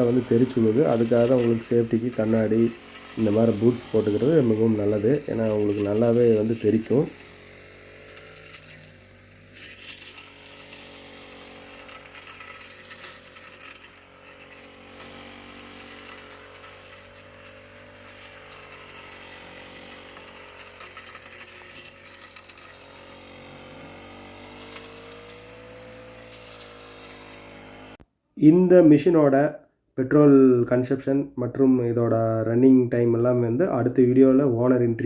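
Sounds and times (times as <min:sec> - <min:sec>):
blade cutting through stalks: 0:00.0 - 0:28.0
brush cutter engine running: 0:00.0 - 0:28.0.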